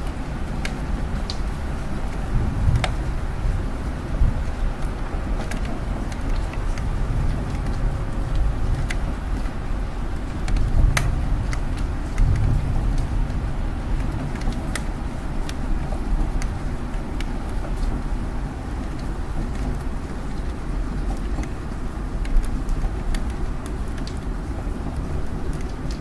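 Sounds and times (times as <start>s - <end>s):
single raindrops ticking: 0.0s - 3.0s
rain falling: 0.0s - 26.0s.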